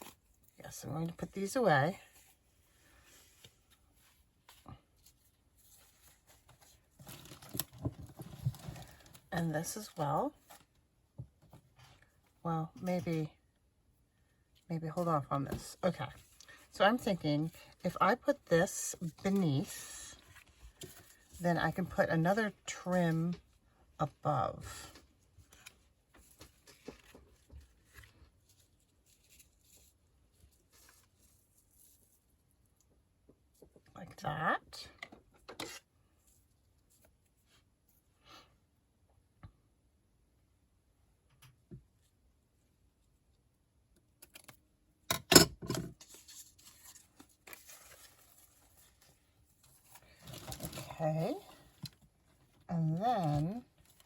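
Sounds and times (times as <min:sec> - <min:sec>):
paper and lace rustling: 0:01.9 - 0:10.9, 0:14.5 - 0:23.6, 0:24.8 - 0:33.8, 0:46.0 - 0:54.0
paper rustling: 0:25.4 - 0:32.3, 0:46.0 - 0:52.0.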